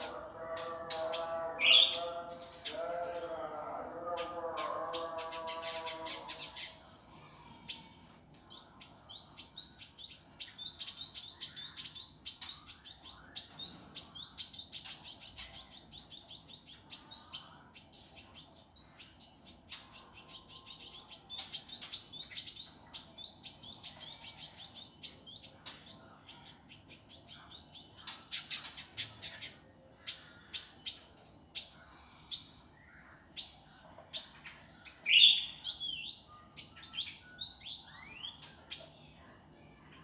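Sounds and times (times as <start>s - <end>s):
bird chirping song: 0.0s - 40.0s.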